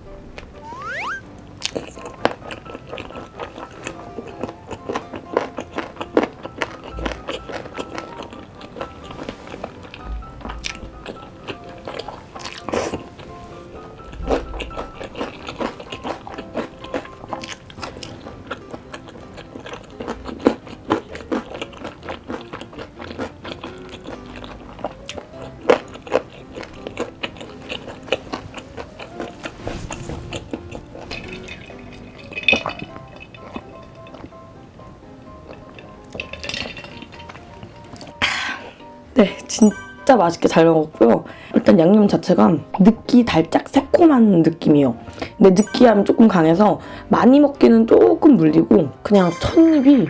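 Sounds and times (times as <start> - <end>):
biting and chewing sticky chicken: 1.6 - 38.8.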